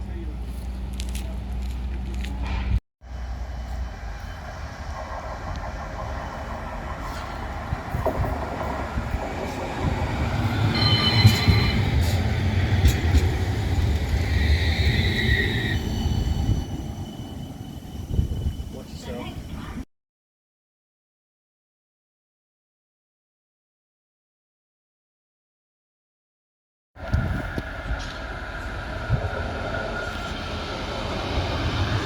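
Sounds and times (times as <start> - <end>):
tram wheel rumble: 0.0 - 19.8, 27.0 - 32.0
high wheel squeal: 10.1 - 19.7.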